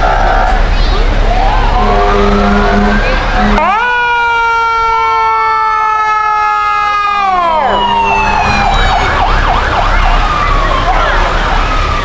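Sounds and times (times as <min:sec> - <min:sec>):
wailing siren: 0:00.0 - 0:12.0
fire truck air horn blast: 0:01.7 - 0:04.9.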